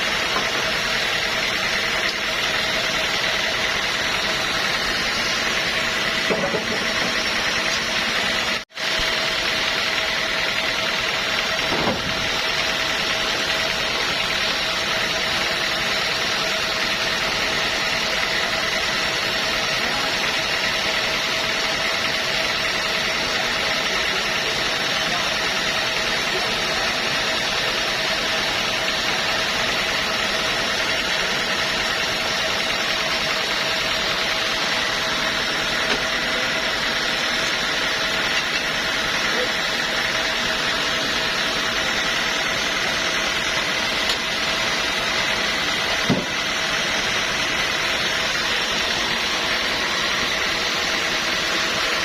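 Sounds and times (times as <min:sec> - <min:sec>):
sawmill machinery humming: 0:00.0 - 0:52.0.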